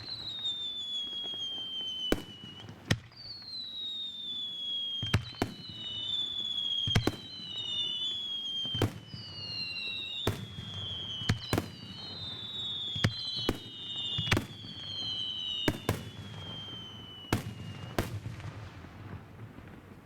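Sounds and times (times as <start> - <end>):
firework whistles falling in pitch: 0.0 - 18.6.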